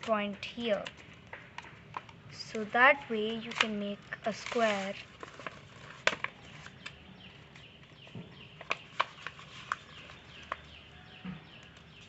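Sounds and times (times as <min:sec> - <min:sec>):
paper crinkling: 0:00.0 - 0:10.7
faint bird chirps: 0:06.4 - 0:12.0.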